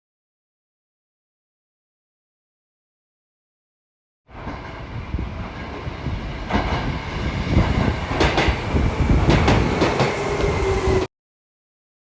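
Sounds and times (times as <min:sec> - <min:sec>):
train rumbling on rails: 0:04.3 - 0:11.1
wheels clacking: 0:07.6 - 0:11.0.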